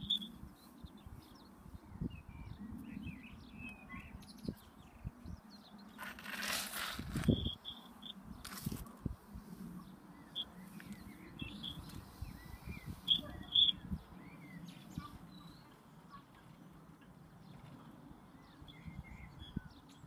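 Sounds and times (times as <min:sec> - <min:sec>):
birds whistling and chirping: 0:00.0 - 0:06.1, 0:07.1 - 0:08.3, 0:09.8 - 0:16.6, 0:18.3 - 0:20.0.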